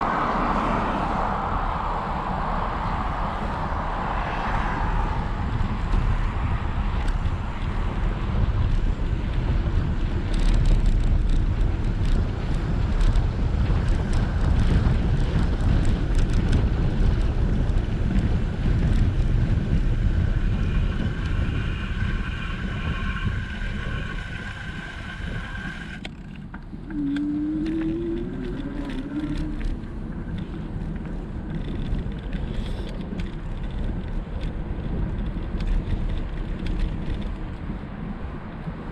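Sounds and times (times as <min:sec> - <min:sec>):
low rumble: 0:00.0 - 0:38.9
wind buffeting microphone: 0:00.0 - 0:38.9
thin steady whine: 0:18.4 - 0:31.3.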